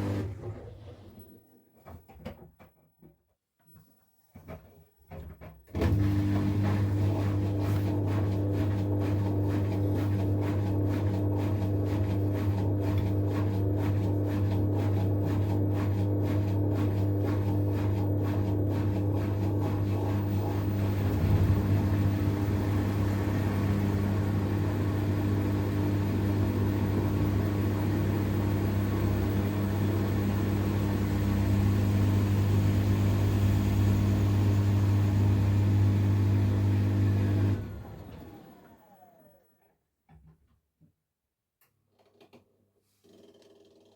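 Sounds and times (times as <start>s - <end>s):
washing machine drum spinning: 5.8s - 37.6s.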